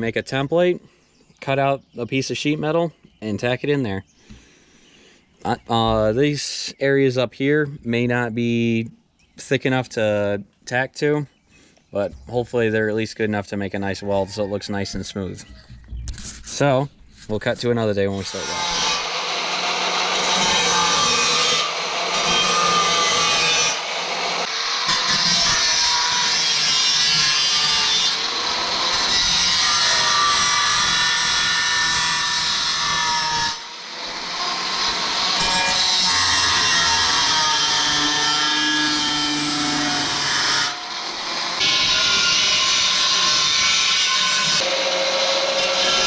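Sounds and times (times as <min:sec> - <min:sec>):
power tool cutting sheet metal: 0:18.2 - 0:46.0.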